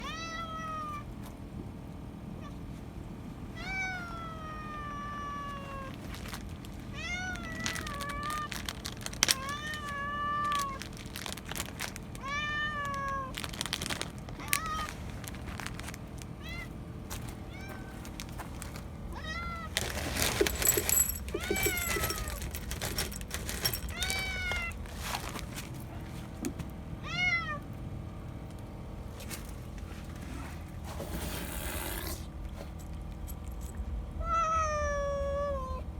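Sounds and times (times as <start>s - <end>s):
cat meowing: 0.0s - 1.0s, 3.6s - 6.0s, 9.4s - 10.8s, 12.2s - 13.4s, 16.4s - 16.8s, 27.0s - 27.6s, 34.2s - 35.9s
clicks and rustling: 19.7s - 26.7s.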